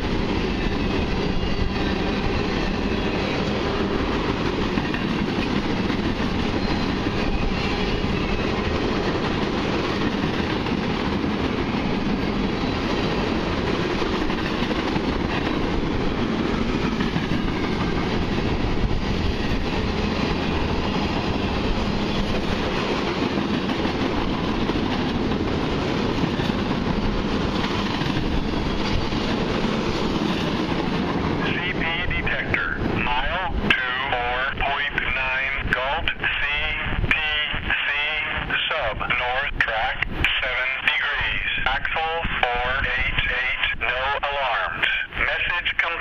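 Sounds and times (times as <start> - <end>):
freight train wheels on rails: 0.0 - 46.0.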